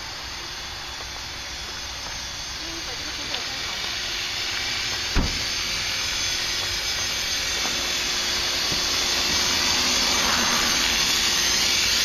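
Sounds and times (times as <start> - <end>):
helicopter rotor whir: 0.0 - 12.0
brief thump: 5.2 - 5.4.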